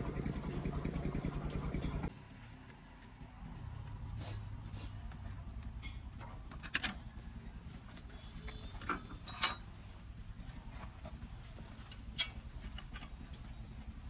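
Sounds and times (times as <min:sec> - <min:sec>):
metallic clinks of tools: 0:09.1 - 0:09.8.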